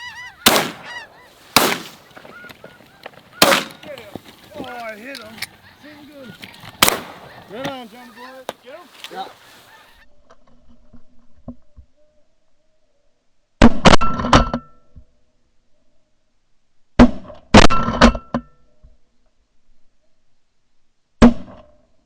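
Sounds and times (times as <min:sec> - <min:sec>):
shotguns firing: 0:00.3 - 0:05.6, 0:06.7 - 0:09.4.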